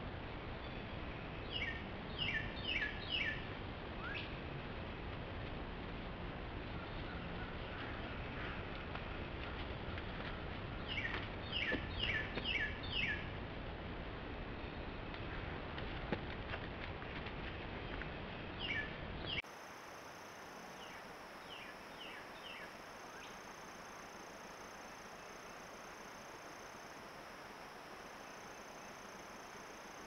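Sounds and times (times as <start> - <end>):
background hiss: 18.2 - 30.0.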